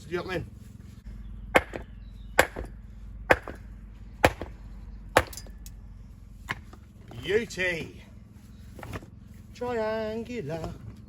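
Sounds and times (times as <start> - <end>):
hammer striking stone: 1.6 - 2.7, 3.3 - 3.6, 4.2 - 4.5.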